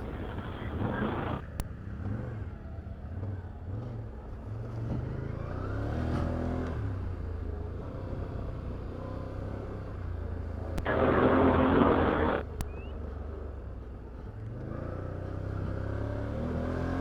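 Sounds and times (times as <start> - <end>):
atv engine revving: 10.8 - 12.9.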